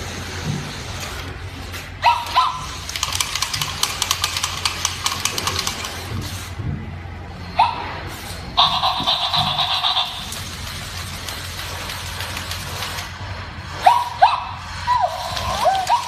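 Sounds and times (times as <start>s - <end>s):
fast electronic clicks: 2.8s - 6.1s.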